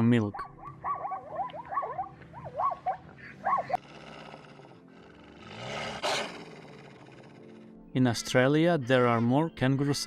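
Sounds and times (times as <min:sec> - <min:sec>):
low animal growl: 0:03.6 - 0:07.8.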